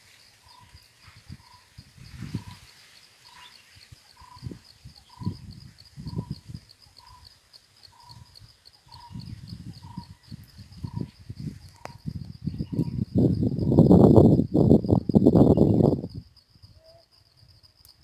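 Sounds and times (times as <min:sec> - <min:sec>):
fast-pulsing insect trill: 0:00.2 - 0:18.0
wind rumbling on microphone: 0:00.5 - 0:02.7, 0:04.0 - 0:07.2, 0:08.1 - 0:16.8.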